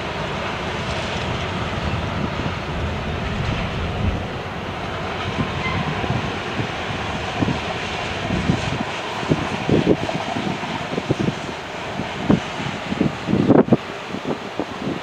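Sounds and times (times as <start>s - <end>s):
steel wheels on rail: 0.0s - 15.0s
low thumps: 2.4s - 6.2s.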